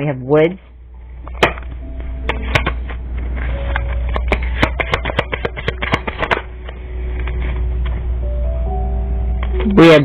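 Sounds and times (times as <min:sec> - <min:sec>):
steady low hum: 0:00.0 - 0:10.0
cards being shuffled: 0:02.3 - 0:07.7.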